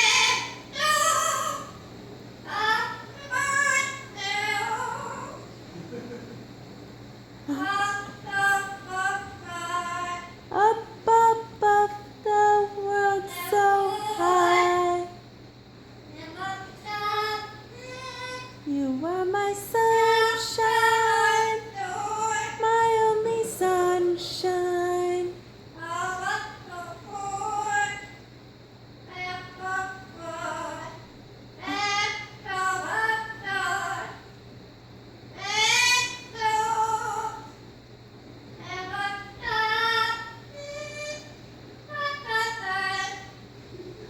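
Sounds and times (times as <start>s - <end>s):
parrot singing a tune: 0.0s - 1.8s, 2.4s - 5.5s, 31.6s - 34.2s, 35.4s - 37.5s, 38.6s - 43.3s.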